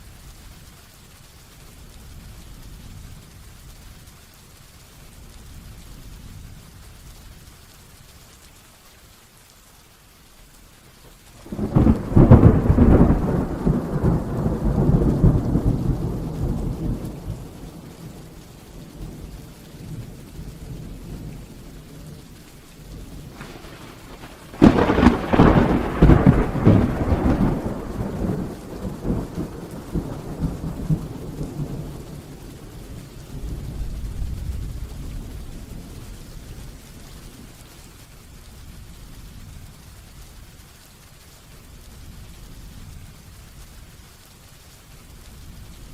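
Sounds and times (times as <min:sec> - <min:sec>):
heavy rain falling: 0:00.0 - 0:45.9
thunder claps rolling: 0:11.4 - 0:22.3, 0:22.9 - 0:37.5.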